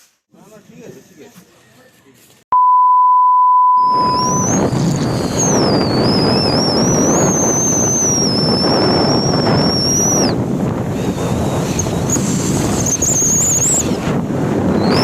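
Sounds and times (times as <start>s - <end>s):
electronic beep: 2.6s - 10.2s
high wavering whistle: 2.6s - 10.4s
wind rushing over microphone: 3.8s - 15.0s.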